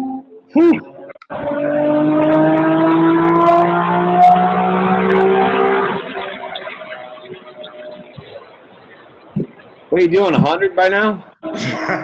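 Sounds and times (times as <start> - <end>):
car engine accelerating hard: 0.9 - 8.9.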